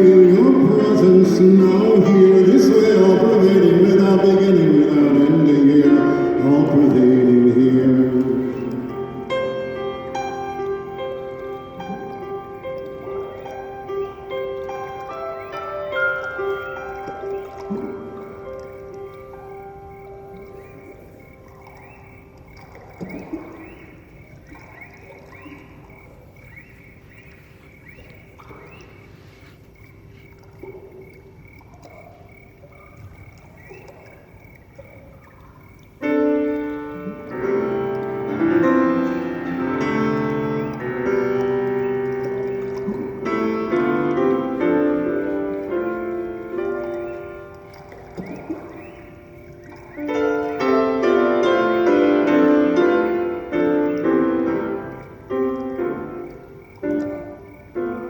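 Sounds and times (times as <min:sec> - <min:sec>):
soft held ambient tones: 0:00.0 - 0:58.0
loud keyboard chord: 0:36.0 - 0:47.6.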